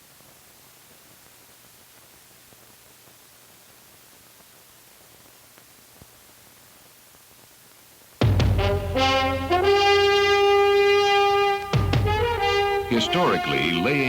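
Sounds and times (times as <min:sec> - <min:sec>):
film soundtrack hiss: 0:00.0 - 0:14.0
small clicks and pops: 0:00.2 - 0:08.2.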